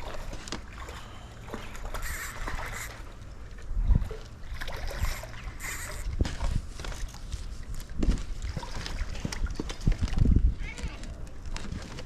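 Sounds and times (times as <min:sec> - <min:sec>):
knocks and thumps in a boat: 0:06.0 - 0:12.0.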